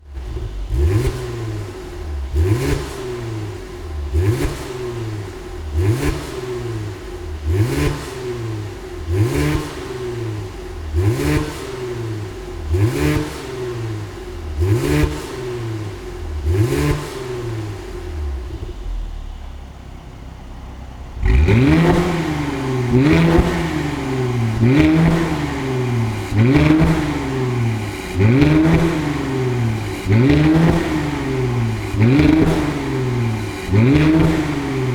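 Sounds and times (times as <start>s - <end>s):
car engine revving: 0.0s - 20.0s, 21.0s - 34.9s.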